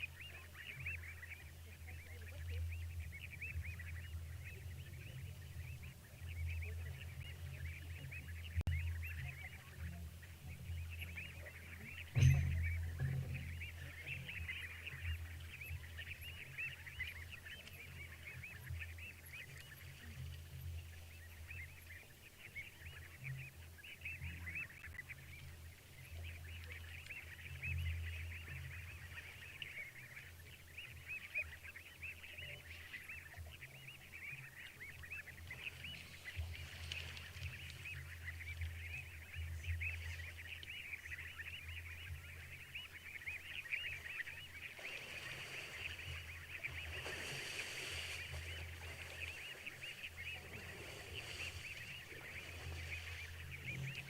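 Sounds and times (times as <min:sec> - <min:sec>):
low hum: 0:00.0 - 0:23.6.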